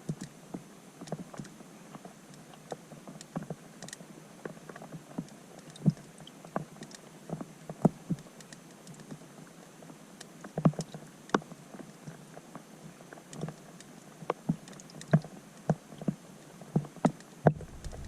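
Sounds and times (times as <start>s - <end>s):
faint underwater hiss: 17.5s - 18.0s
raindrops plinking underwater: 17.5s - 18.0s.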